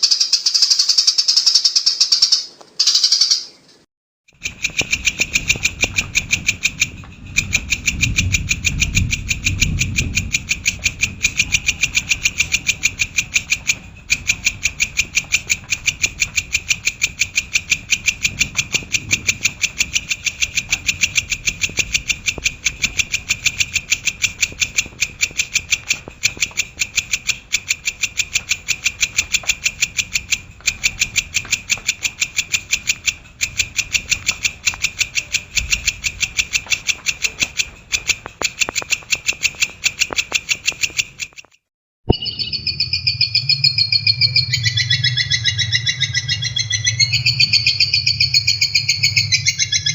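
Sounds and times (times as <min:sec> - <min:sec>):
shrike chattering call: 0:00.0 - 0:03.6, 0:42.1 - 0:49.9
low rumble: 0:05.1 - 0:25.0.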